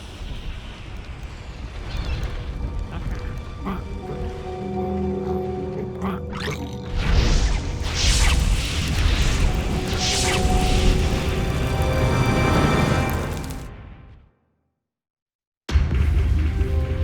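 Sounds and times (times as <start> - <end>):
dramatic background score: 0.0 - 14.2, 15.7 - 17.0
crashing whooshing sound effects: 7.0 - 13.8.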